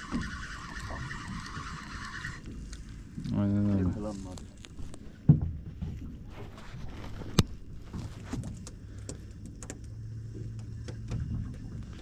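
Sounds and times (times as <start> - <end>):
light clicks and knocks: 7.2 - 12.0.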